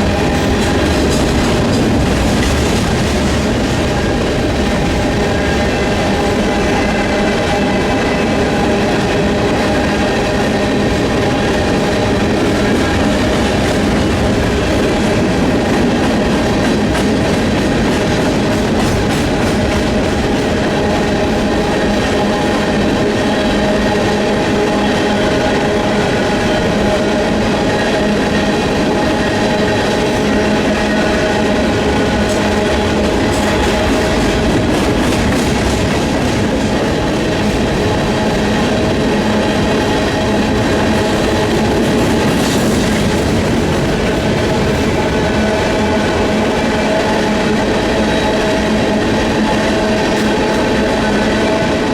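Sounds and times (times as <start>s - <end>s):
wheels clicking over rail joints: 0.0s - 5.2s, 31.9s - 38.7s
freight train rolling past: 0.0s - 51.9s.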